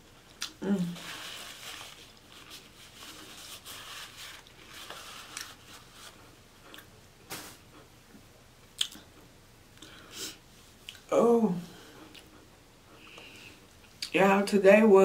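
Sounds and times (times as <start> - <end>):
person chewing with mouth closed: 0.2 - 0.6, 6.6 - 6.9, 8.7 - 9.1.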